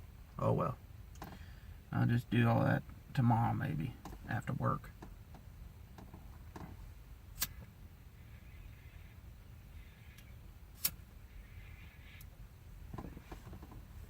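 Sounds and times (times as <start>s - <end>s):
low steady hum: 0.0s - 14.0s
short sharp clicks: 10.8s - 11.0s.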